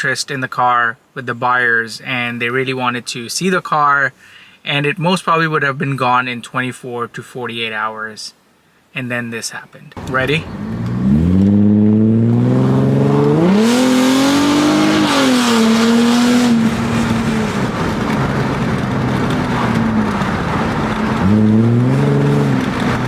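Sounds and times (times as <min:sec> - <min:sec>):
car engine accelerating: 0:10.0 - 0:23.0.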